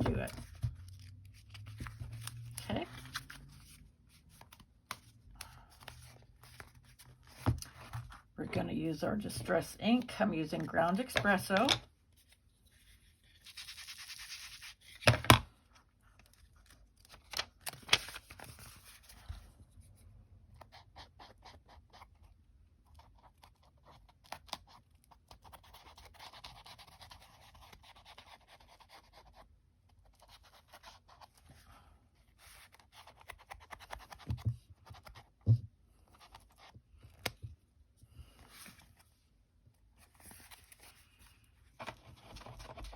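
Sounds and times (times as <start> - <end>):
dry scratchy rubbing on paper: 12.7 - 14.9.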